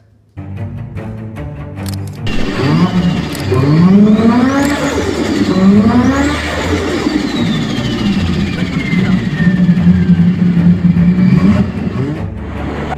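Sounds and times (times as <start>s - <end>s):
faint high whine: 2.3s - 12.2s
car engine revving hard: 2.3s - 12.9s.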